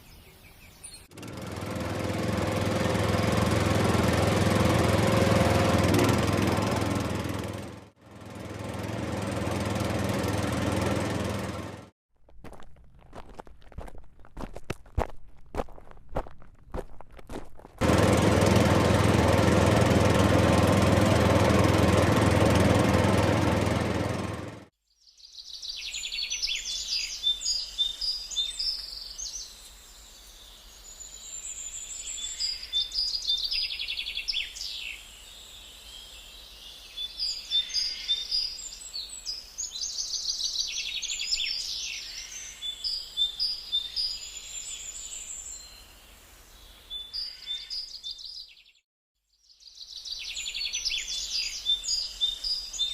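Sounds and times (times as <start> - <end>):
birds chirping and trilling: 0.0 - 1.1, 25.0 - 48.8, 49.4 - 52.9.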